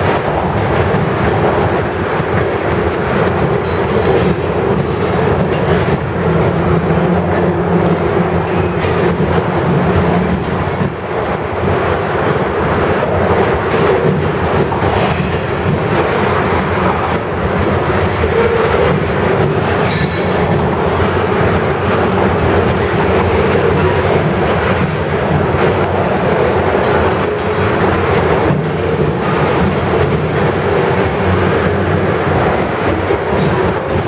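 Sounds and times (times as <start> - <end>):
clickety-clack over rail joints: 0.0 - 34.0
freight train wheels rumbling: 0.0 - 34.0.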